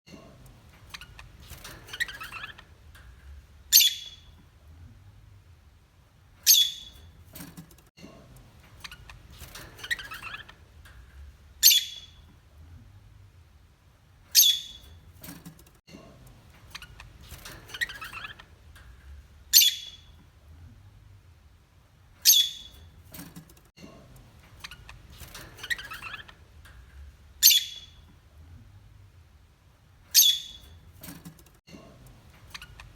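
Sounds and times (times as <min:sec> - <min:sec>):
parrot squawking: 0:06.5 - 0:07.0.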